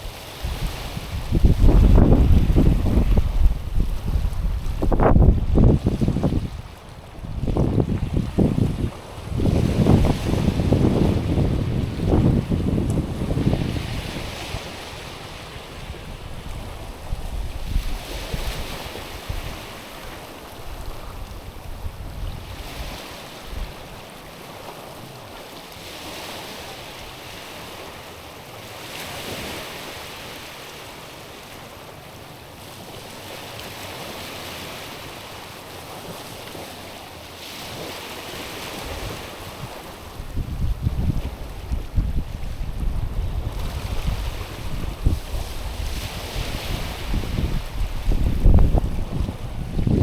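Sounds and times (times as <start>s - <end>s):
wind buffeting microphone: 0.0s - 19.8s, 20.4s - 24.0s, 38.6s - 50.0s
waves washing onto pebbly shore: 0.0s - 50.0s.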